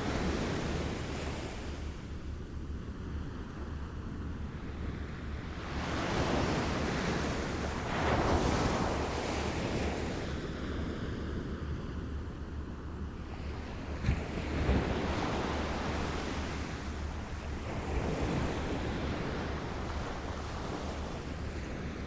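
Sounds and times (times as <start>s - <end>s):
wind rumble on microphone: 0.0s - 22.0s
small waves lapping at shore: 4.6s - 11.9s, 13.2s - 22.0s.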